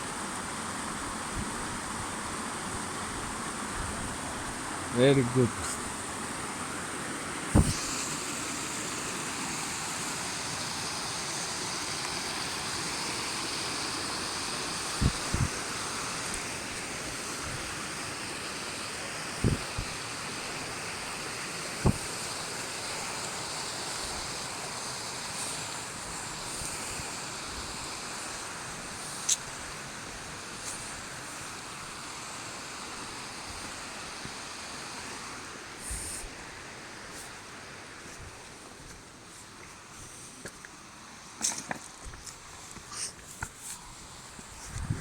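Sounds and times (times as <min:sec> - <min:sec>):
waterfall rushing: 0:02.2 - 0:35.7.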